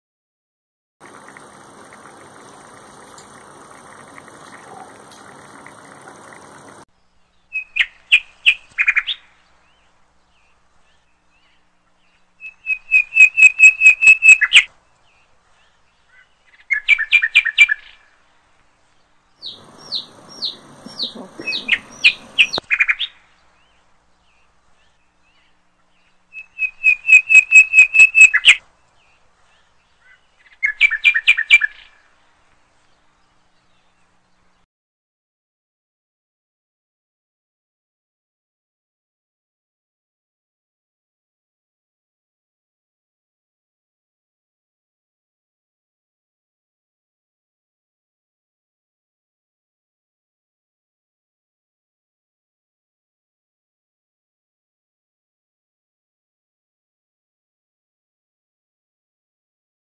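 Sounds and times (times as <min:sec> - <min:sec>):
faint steady hiss: 0:01.0 - 0:12.9, 0:18.0 - 0:26.8, 0:31.9 - 0:34.6
bird chirping in bursts: 0:12.4 - 0:14.6, 0:19.3 - 0:25.2, 0:26.0 - 0:31.9.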